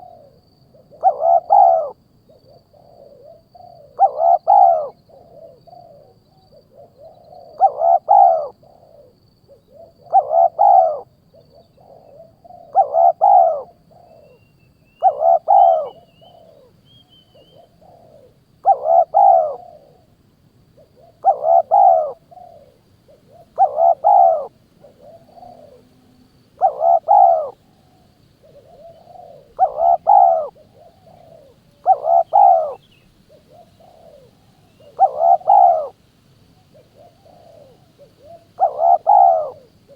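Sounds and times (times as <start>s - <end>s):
bird call: 10.1s - 20.0s, 20.8s - 25.9s, 26.6s - 36.0s, 36.6s - 39.7s.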